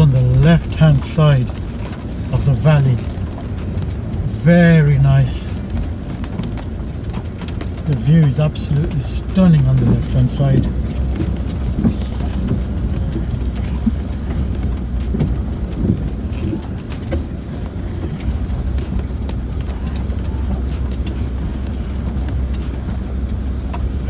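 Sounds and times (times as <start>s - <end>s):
vehicle drivetrain and tyres drone: 0.0s - 24.0s
small knocks and rattles: 5.5s - 24.0s.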